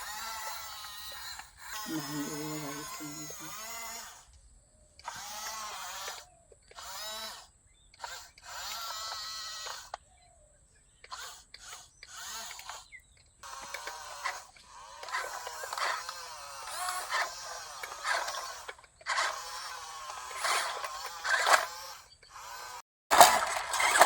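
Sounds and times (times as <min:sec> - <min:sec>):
small electric motors whining: 0:00.0 - 0:10.3, 0:10.9 - 0:24.0.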